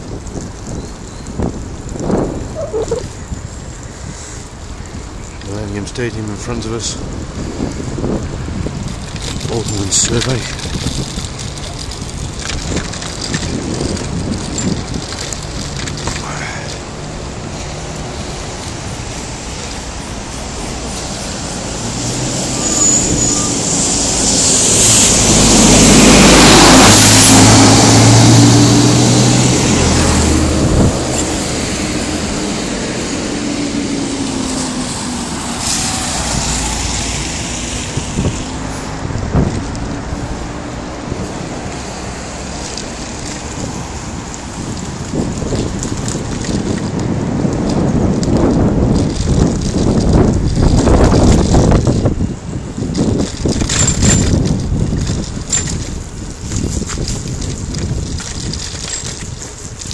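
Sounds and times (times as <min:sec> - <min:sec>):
steady rushing noise: 0:00.0 - 0:59.9
wind buffeting microphone: 0:00.0 - 0:59.9
bicycle squeaks: 0:00.6 - 0:03.2, 0:20.6 - 0:25.0.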